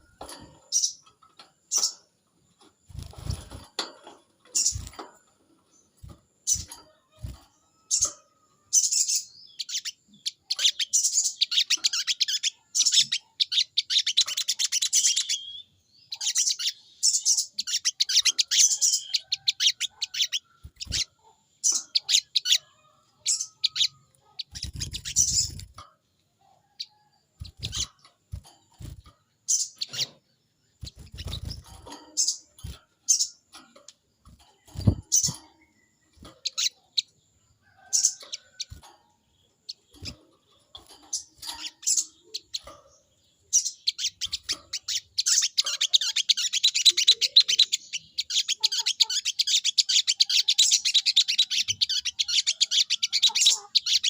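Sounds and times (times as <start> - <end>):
bird chattering calls: 41.1 - 54.0.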